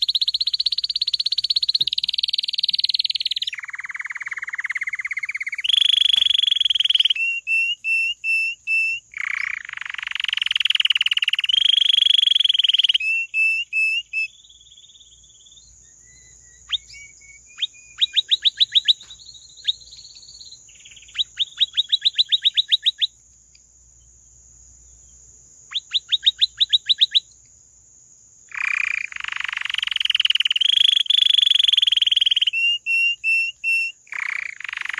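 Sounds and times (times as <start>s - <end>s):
canary singing rolls and trills: 0.0s - 23.4s, 25.2s - 27.4s, 28.5s - 34.9s.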